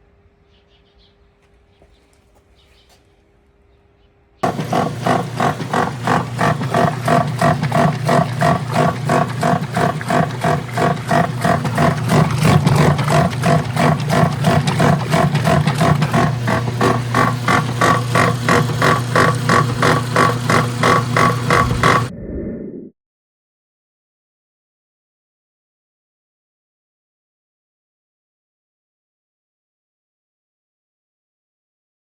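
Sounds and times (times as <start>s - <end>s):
washing machine running: 4.4s - 22.1s.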